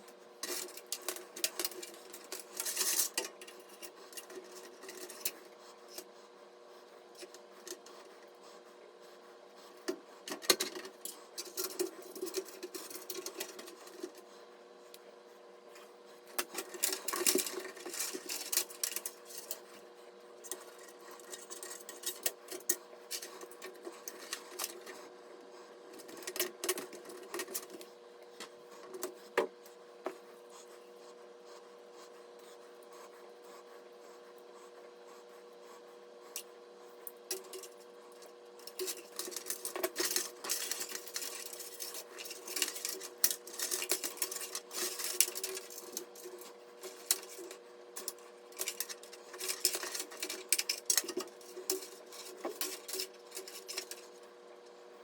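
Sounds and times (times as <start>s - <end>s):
steady hum: 0.0s - 55.0s
small hard parts clicking: 37.3s - 54.1s.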